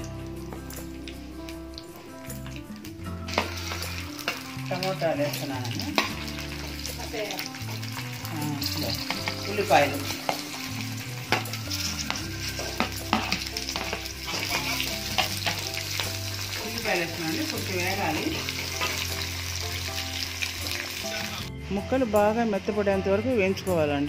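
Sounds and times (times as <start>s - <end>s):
vegetables sizzling in hot oil: 0.0s - 24.0s
steel spatula scraping a pan: 11.3s - 16.4s, 18.0s - 19.4s.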